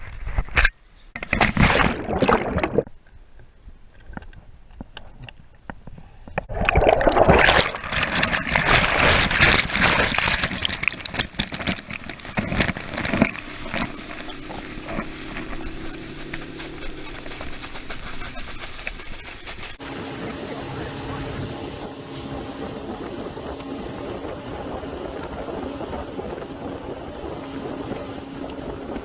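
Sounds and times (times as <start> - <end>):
water sloshing and splashing: 1.2 - 3.0, 6.5 - 18.3, 19.7 - 29.0
steady low hum: 13.2 - 29.0.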